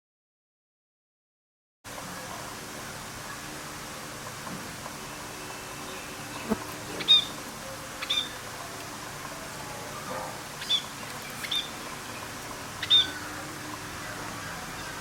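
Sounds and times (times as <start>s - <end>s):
bird chirping: 5.8s - 7.4s, 8.0s - 8.4s, 10.6s - 13.4s.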